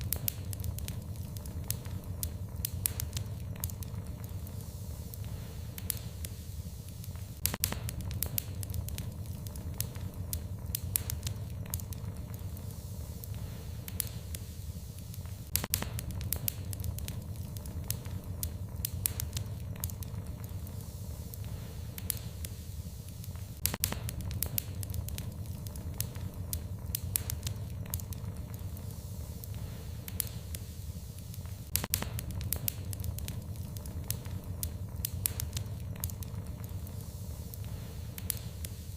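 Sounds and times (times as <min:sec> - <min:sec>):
low fire rumble: 0:00.0 - 0:38.9
wood fire crackling and popping: 0:00.0 - 0:38.9.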